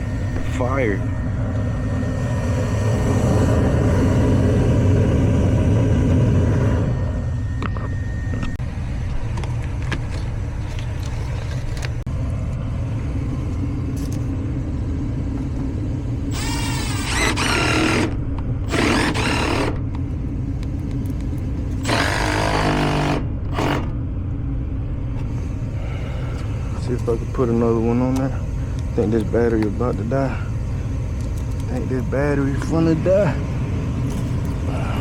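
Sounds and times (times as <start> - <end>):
gas furnace low rumble: 0.0 - 35.0
cordless drill whirring: 16.3 - 19.8, 21.8 - 23.9.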